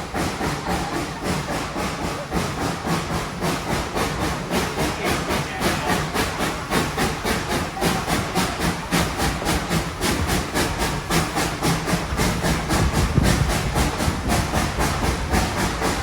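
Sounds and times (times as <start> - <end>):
hissing steam: 0.0 - 16.0
steam locomotive chuffing: 0.0 - 16.0.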